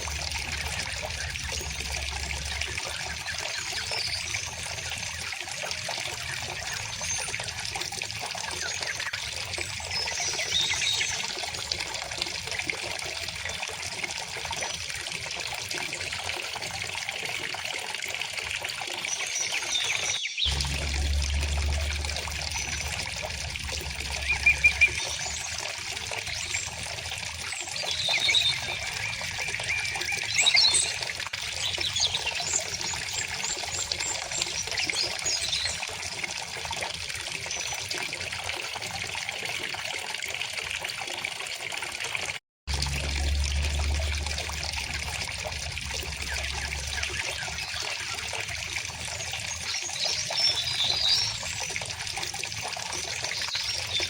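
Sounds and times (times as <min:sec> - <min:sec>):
river water flowing: 0:00.0 - 0:11.1, 0:19.2 - 0:35.7, 0:42.7 - 0:54.0
birds chirping: 0:19.1 - 0:31.0, 0:43.3 - 0:51.7.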